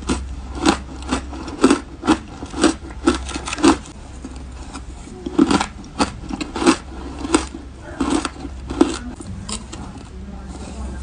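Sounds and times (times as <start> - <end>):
chewing shaved ice crunches: 0.0 - 10.1.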